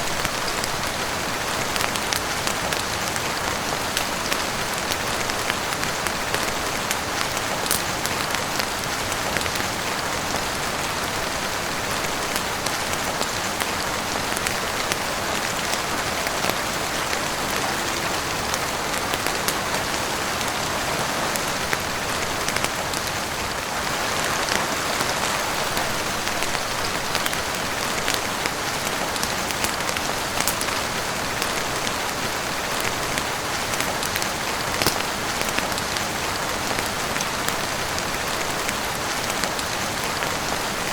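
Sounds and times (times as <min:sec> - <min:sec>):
heavy rain on a roof: 0:00.0 - 0:40.9
raindrop ticks: 0:32.7 - 0:36.0.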